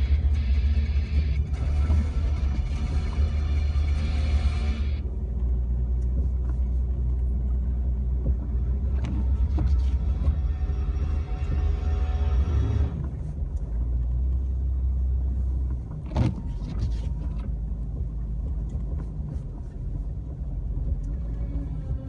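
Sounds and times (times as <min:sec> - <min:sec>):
engine and road rumble: 0:00.0 - 0:22.0.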